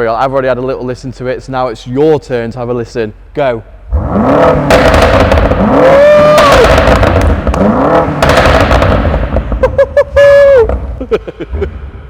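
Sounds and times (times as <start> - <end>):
car engine revving: 3.9 - 9.8
exhaust cracks and pops: 4.6 - 9.8.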